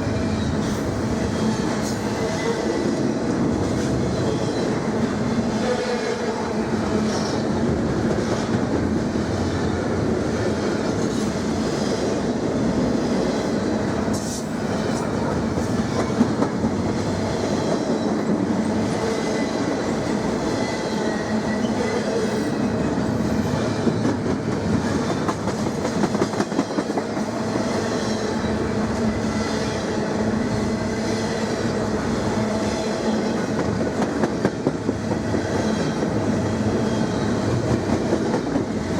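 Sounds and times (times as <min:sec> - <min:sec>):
train wheels clattering over rail joints: 0:22.2 - 0:28.4, 0:33.4 - 0:38.9.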